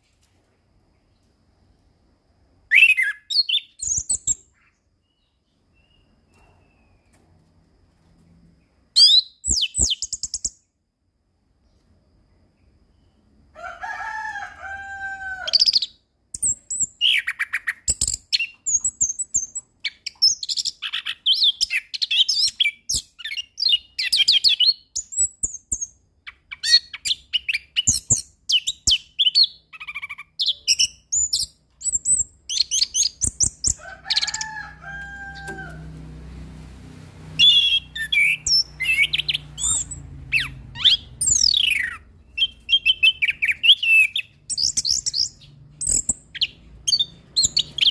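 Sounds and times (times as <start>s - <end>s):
thrush singing whistles and trills: 2.6s - 7.1s, 9.0s - 10.7s, 15.5s - 34.4s, 37.3s - 47.9s.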